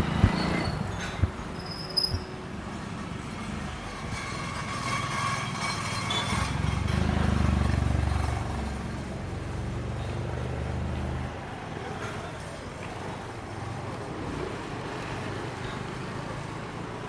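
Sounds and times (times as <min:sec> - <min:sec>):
motor vehicle passing by: 0:03.2 - 0:12.0, 0:12.8 - 0:17.0.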